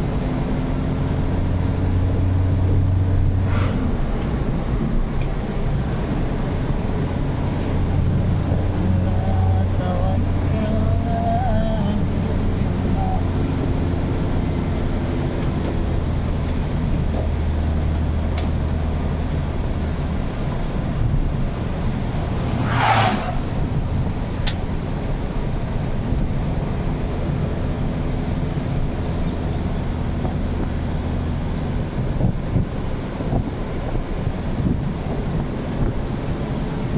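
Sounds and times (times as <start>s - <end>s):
tyre and road noise: 0.0s - 36.9s
brief rushing sound: 3.3s - 4.5s, 22.4s - 23.7s.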